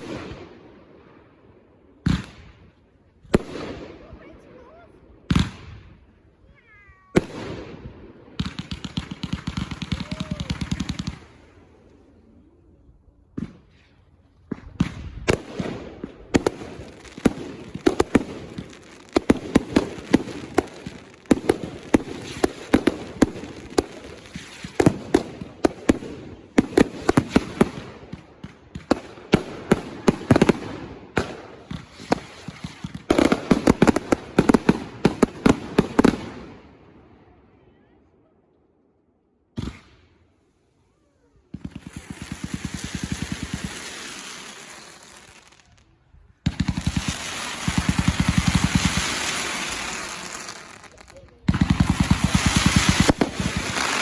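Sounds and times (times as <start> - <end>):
fireworks crackling: 3.2 - 12.2, 13.3 - 36.6, 40.9 - 54.0
firework bangs: 7.0 - 11.6, 13.3 - 36.6, 41.5 - 45.8, 46.4 - 54.0.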